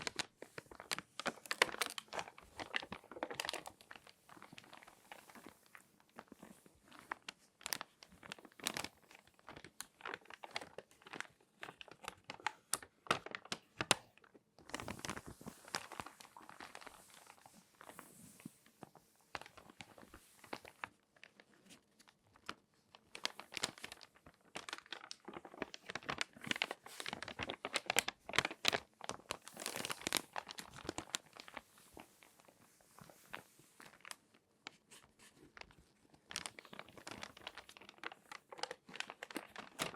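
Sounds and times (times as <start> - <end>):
magazine pages crinkling: 0.0 - 39.9.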